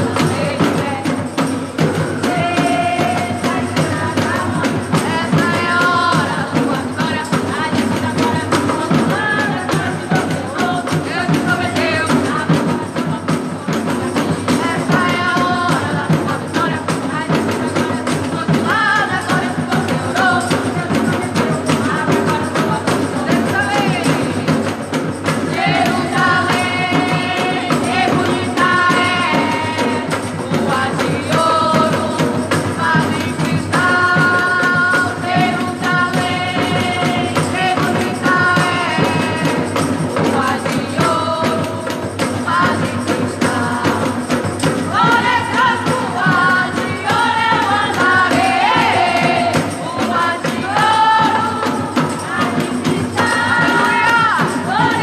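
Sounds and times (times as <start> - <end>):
steady percussion beat: 0.0 - 55.0
voices singing: 0.0 - 55.0
worship band playing: 0.0 - 55.0.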